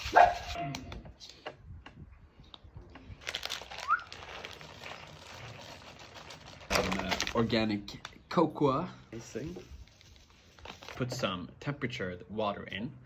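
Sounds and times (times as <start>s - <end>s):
rustling of containers and packets: 2.5s - 8.4s, 9.2s - 11.4s.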